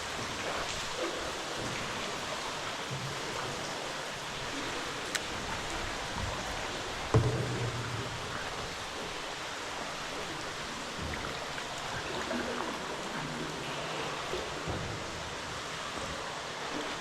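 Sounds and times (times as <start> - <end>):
running water splashing: 0.0 - 17.0.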